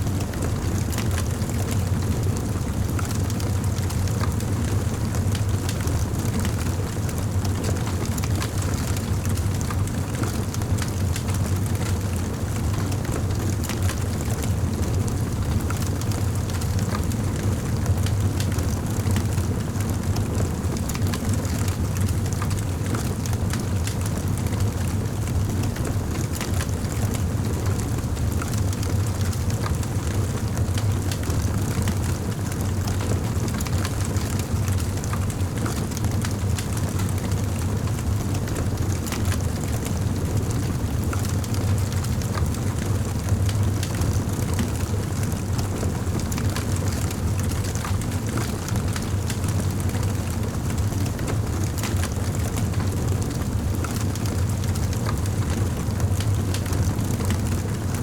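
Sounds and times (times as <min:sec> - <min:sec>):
low rumble of fire: 0:00.0 - 0:58.0
wood fire crackling: 0:20.2 - 0:24.9, 0:25.6 - 0:57.9.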